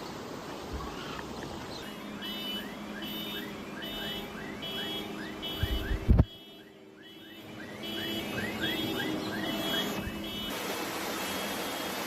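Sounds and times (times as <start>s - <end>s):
rushing water: 0.0s - 6.2s, 7.4s - 12.0s
car alarm chirping: 1.8s - 10.6s.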